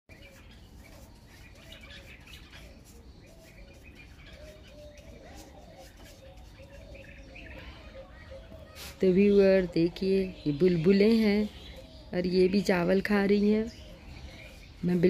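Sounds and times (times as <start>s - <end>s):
birds chirping: 0.1s - 15.0s.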